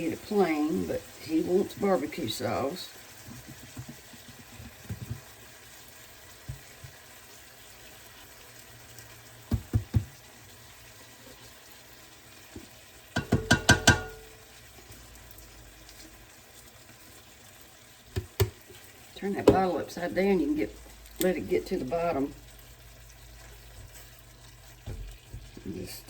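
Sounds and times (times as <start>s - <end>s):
chicken sizzling in a frying pan: 0.0s - 26.0s
kitchen handling knocks: 13.2s - 14.3s, 18.2s - 18.6s.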